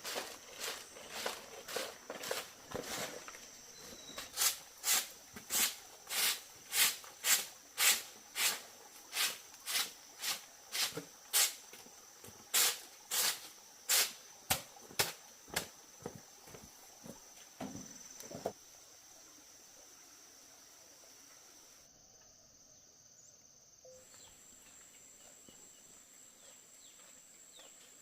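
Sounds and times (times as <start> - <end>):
high insect drone: 0.0 - 28.0.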